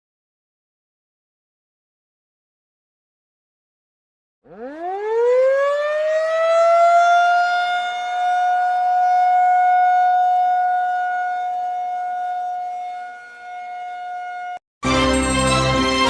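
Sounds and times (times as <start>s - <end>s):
warning siren wailing: 4.5s - 14.6s.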